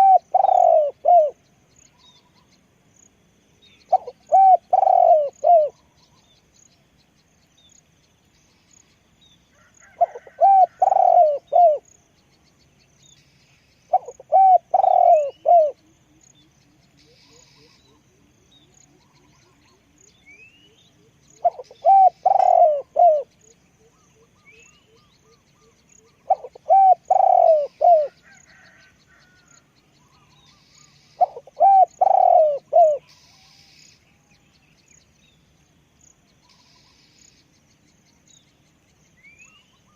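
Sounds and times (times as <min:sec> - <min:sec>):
dove cooing: 0:00.0 - 0:01.4, 0:03.9 - 0:05.8, 0:09.8 - 0:11.9, 0:13.9 - 0:15.8, 0:21.4 - 0:23.3, 0:26.0 - 0:29.4, 0:31.2 - 0:33.2
faint small bird chirps: 0:00.0 - 0:35.5, 0:36.2 - 0:39.9.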